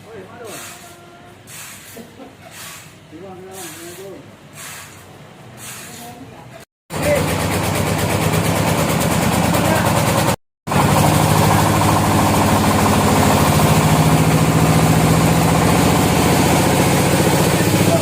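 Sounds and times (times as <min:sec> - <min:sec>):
engine running steadily: 0:07.0 - 0:18.0.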